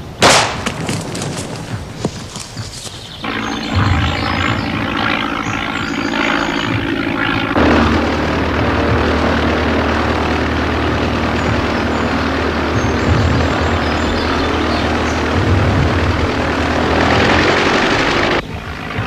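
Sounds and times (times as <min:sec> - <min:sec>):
biplane propeller engine running: 0:00.0 - 0:19.0.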